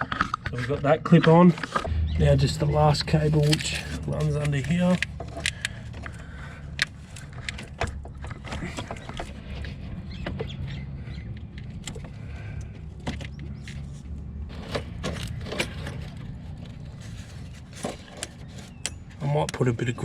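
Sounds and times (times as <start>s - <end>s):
low rumble: 1.8s - 7.5s.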